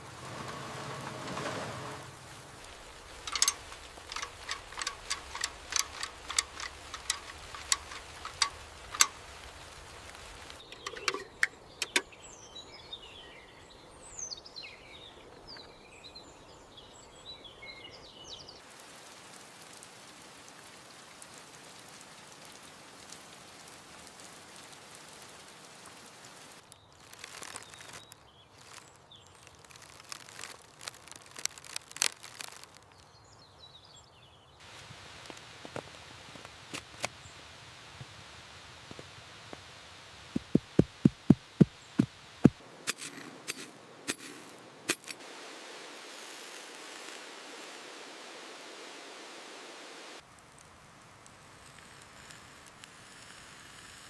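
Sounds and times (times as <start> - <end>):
birds chirping: 0.0 - 18.6, 40.4 - 44.7
steady rain: 0.0 - 33.4, 34.6 - 54.0
sharp taps: 40.4 - 44.2.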